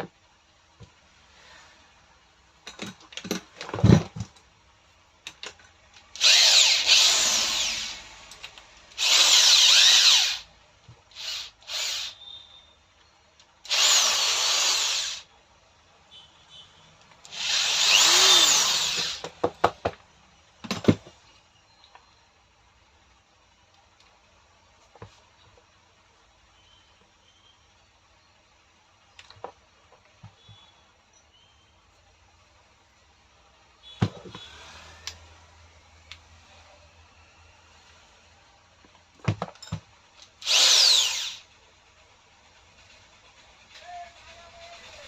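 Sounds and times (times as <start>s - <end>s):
power drill motor spinning: 6.0s - 10.5s, 11.1s - 12.4s, 13.6s - 15.3s, 17.2s - 19.4s, 40.3s - 41.6s.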